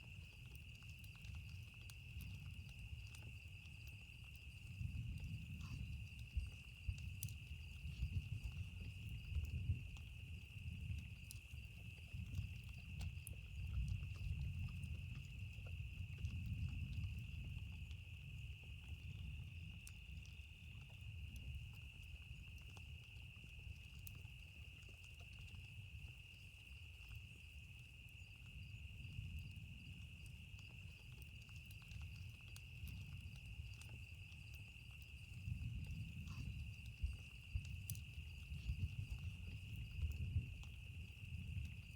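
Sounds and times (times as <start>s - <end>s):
campfire crackling: 0.0s - 41.9s.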